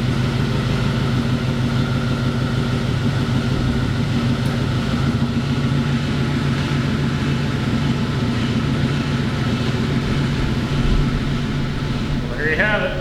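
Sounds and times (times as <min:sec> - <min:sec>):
machine engine humming: 0:00.0 - 0:13.0
low thud: 0:10.1 - 0:12.6.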